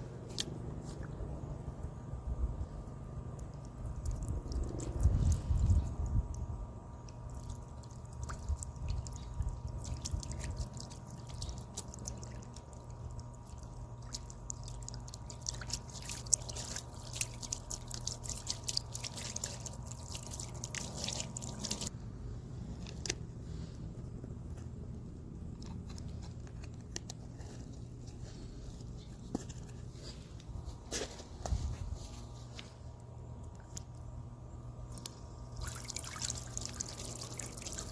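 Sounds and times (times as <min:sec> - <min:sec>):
fountain water dripping into basin: 0:03.0 - 0:21.9, 0:34.9 - 0:37.9.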